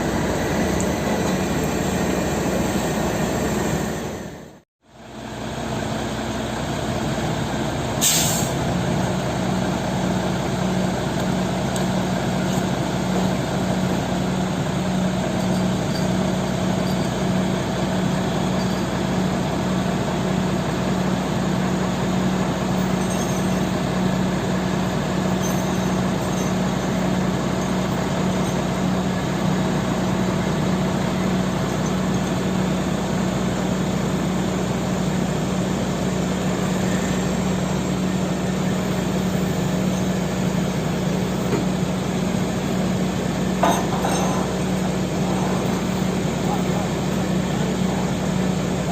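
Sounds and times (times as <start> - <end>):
truck diesel engine running: 0.0 - 48.9
air hiss burst: 8.0 - 8.6.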